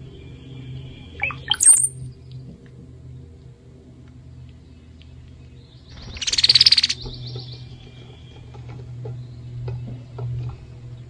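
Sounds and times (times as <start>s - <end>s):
soft bird chirps: 1.1s - 2.0s, 5.7s - 8.3s
bird buzzy rattling call: 1.2s - 1.9s, 6.0s - 7.0s.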